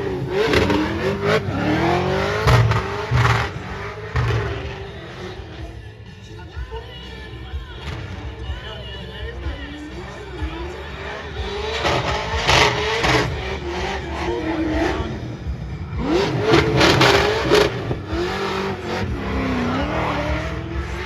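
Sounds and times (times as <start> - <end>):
car engine revving hard: 0.0 - 5.8, 10.0 - 21.0.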